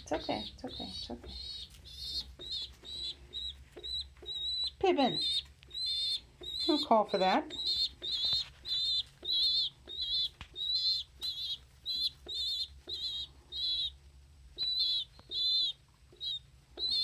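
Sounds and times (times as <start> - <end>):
young pigeon whistling peep: 0.0 - 17.0.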